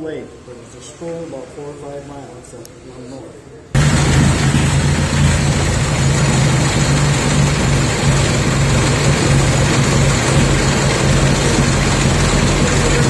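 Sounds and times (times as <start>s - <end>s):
tractor engine running: 3.8s - 13.0s.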